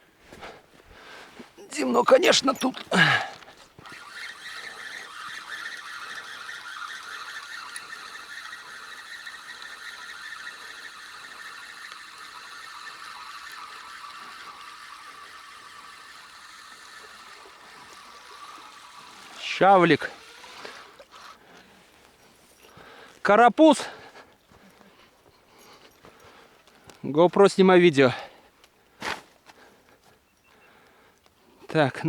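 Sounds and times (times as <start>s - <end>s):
fishing reel whirring: 1.6s - 22.8s.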